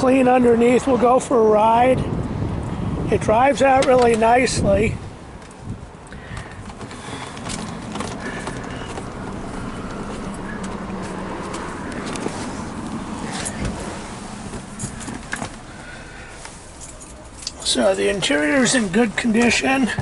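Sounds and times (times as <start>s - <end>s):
car engine running: 5.2s - 20.0s.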